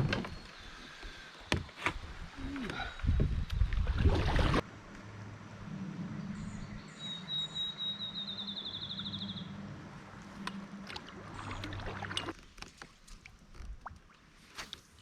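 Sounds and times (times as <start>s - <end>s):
songbird singing: 5.7s - 9.9s.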